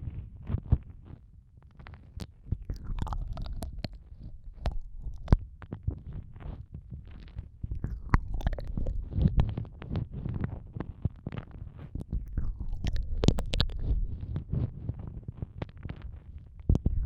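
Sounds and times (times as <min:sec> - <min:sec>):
wet mouth clicks and smacks: 0:02.5 - 0:05.6, 0:07.6 - 0:10.0, 0:12.0 - 0:14.5
low microphone rumble: 0:07.5 - 0:17.0.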